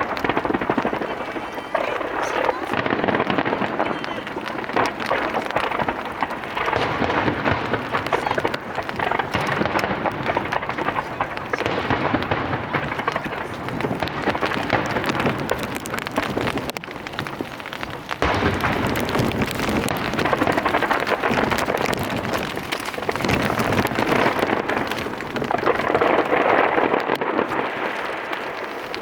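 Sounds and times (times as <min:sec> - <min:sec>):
fireworks bursting and crackling: 0:00.0 - 0:29.0.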